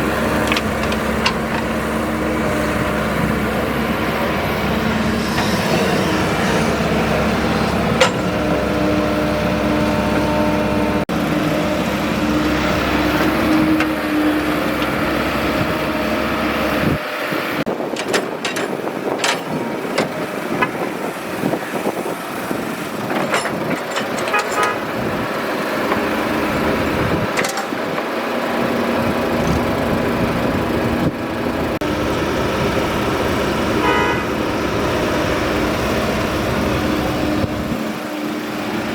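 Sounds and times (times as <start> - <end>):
diesel engine rumbling: 0.0 - 38.9
clicks and rattles: 0.4 - 1.7, 17.9 - 20.8, 23.1 - 24.9, 27.2 - 28.1.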